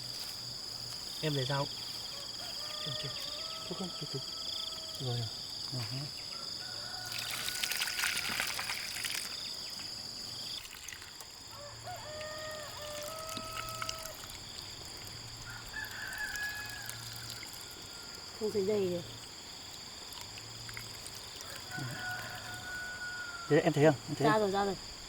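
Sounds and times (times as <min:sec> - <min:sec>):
high drone of insects: 0:00.0 - 0:25.0
rooster crowing: 0:02.1 - 0:05.2, 0:06.3 - 0:08.5, 0:11.5 - 0:14.3, 0:15.4 - 0:18.3, 0:21.4 - 0:23.8
water pouring and splashing: 0:07.0 - 0:11.6, 0:12.2 - 0:17.9, 0:19.2 - 0:22.7.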